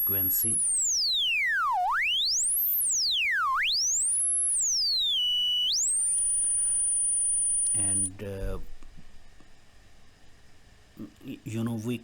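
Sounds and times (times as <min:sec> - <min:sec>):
synthesizer sine tone gliding: 0:00.0 - 0:08.1.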